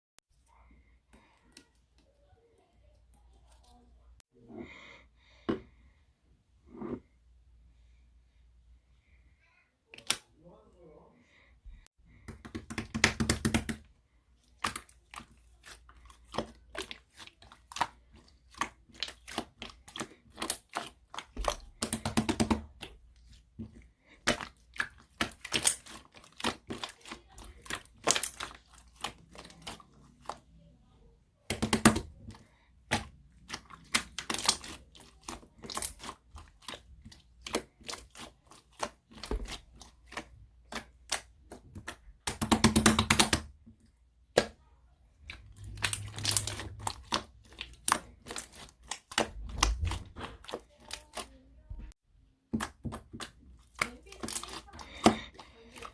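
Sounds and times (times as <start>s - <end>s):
slime clicking and popping: 45.2s - 51.3s.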